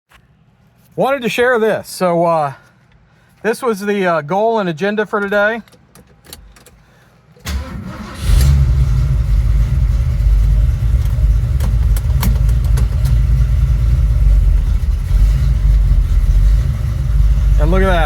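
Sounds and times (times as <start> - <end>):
engine starter cranking: 7.4 - 9.8, 10.7 - 13.4
car engine idling: 7.5 - 18.0
engine ticking: 7.5 - 18.0.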